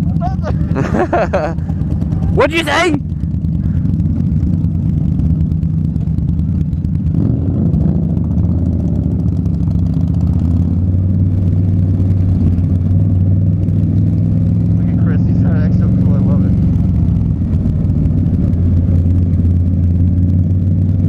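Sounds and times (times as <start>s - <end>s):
motorcycle engines running: 0.0s - 21.0s.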